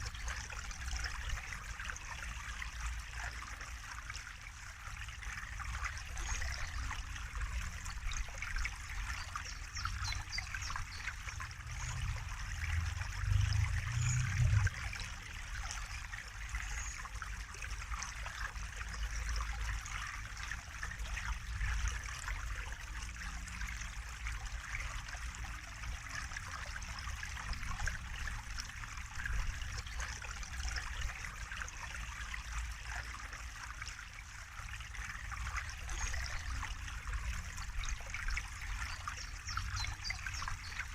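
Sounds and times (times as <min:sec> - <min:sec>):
water trickling and flowing: 0:00.0 - 0:40.9
low rumble: 0:11.4 - 0:14.9.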